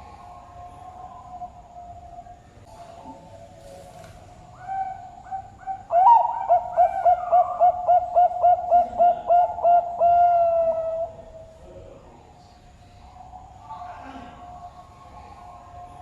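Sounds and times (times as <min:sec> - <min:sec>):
dove cooing: 0:00.0 - 0:11.6.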